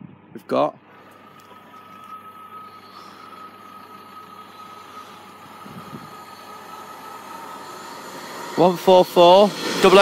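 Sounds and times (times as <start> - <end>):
diesel train running noise: 0.8 - 10.0
thin high tone: 0.8 - 10.0.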